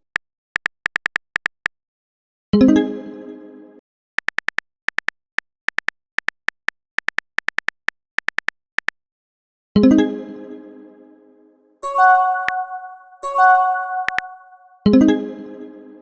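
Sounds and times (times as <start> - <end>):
keyboard typing clicks: 4.2 - 9.0, 12.0 - 14.7
bright plucked chime: 11.8 - 15.2.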